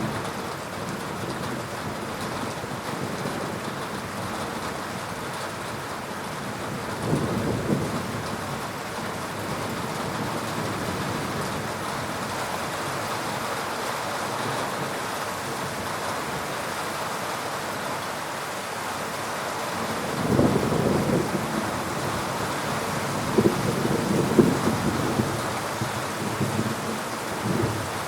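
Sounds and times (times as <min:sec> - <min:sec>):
heavy rain falling: 0:00.0 - 0:28.0
thunder: 0:20.1 - 0:22.3, 0:23.1 - 0:26.8.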